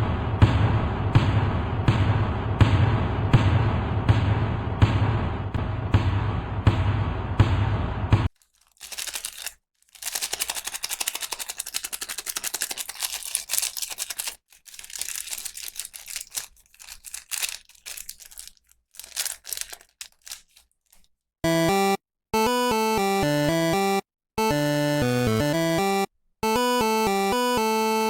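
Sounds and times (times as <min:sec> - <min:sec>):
plastic packaging crinkling: 0:08.3 - 0:21.1
electronic melody with blocky beat: 0:21.4 - 0:28.0.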